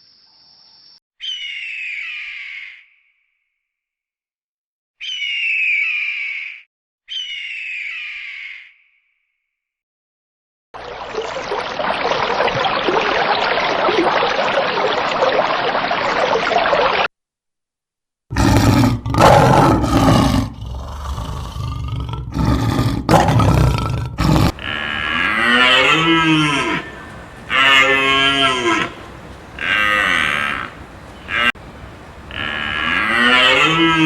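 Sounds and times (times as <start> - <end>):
large animal roaring: 18.3 - 31.7, 32.3 - 34.0
steady noisy hiss: 24.5 - 34.0.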